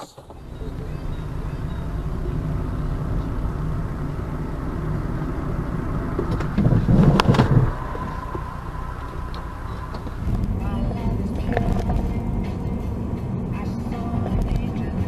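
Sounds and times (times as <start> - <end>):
car engine and road noise: 0.0 - 15.0
sharp knocks and thuds: 6.1 - 7.8.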